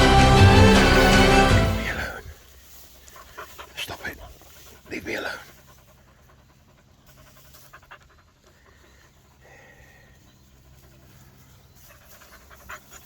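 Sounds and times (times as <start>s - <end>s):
puppy panting: 2.8s - 13.0s.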